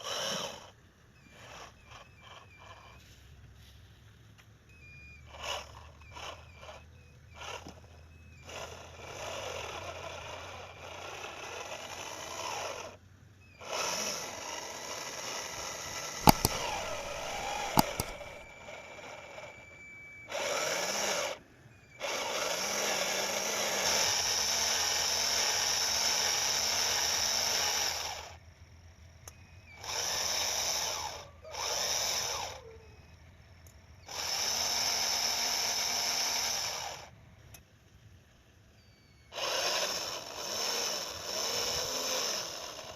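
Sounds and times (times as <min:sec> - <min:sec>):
small electric motors whining: 0:00.0 - 0:03.8, 0:04.4 - 0:37.6, 0:38.6 - 0:42.9
sharp clicks: 0:16.2 - 0:18.5.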